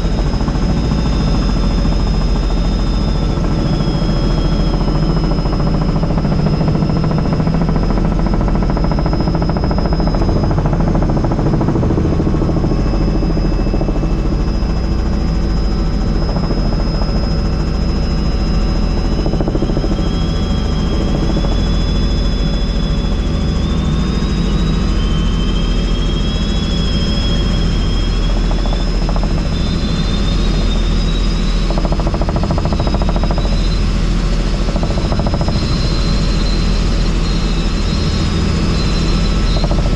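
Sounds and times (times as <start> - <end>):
helicopter rotor and engine drone: 0.0 - 39.9
thin high whine: 8.2 - 39.9.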